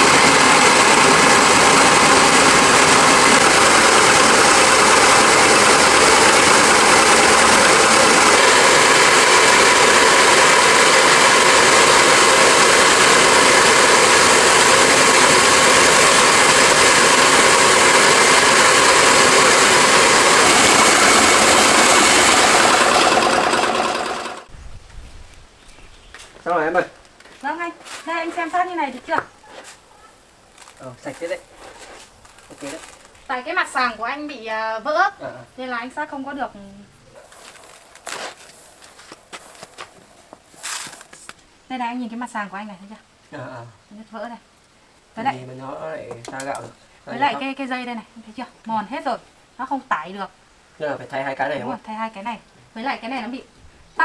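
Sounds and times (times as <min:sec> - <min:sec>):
rice milling machine running: 0:00.0 - 0:24.5, 0:37.2 - 0:41.1.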